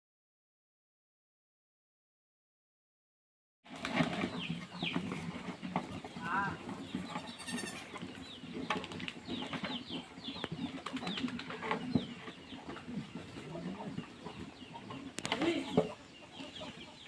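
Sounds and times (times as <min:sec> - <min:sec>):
birds chirping: 0:03.7 - 0:17.0
fowl clucking: 0:06.8 - 0:08.2, 0:08.8 - 0:17.0.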